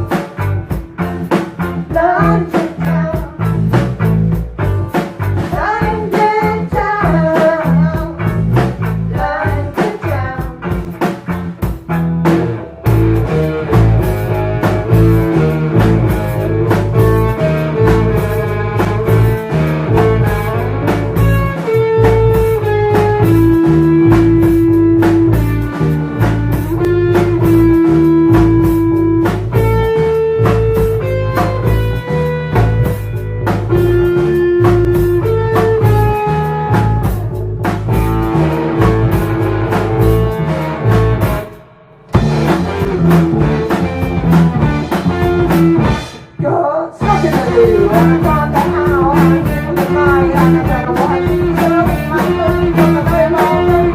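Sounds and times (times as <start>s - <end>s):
electric guitar lead notes: 0.0s - 46.4s, 47.0s - 53.9s
bass: 0.0s - 53.9s
drum kit: 0.0s - 53.9s.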